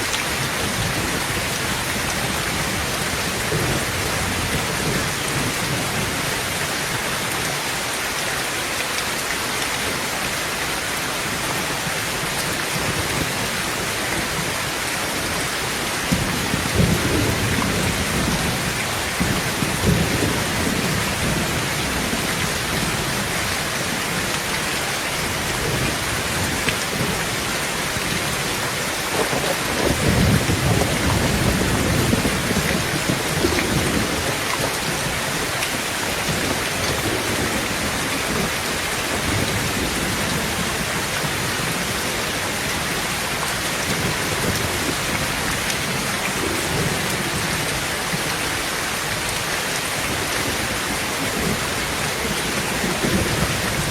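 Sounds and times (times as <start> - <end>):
heavy rain on a tin roof: 0.0 - 53.9
thunder rumbling: 12.1 - 43.2, 50.1 - 53.9.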